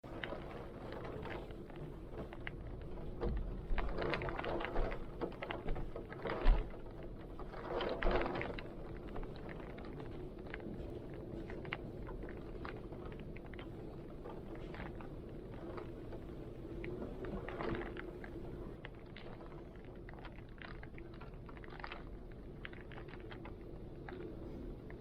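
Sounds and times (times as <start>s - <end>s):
low rumble of wind: 0.0s - 25.0s
raindrops tapping: 0.0s - 25.0s.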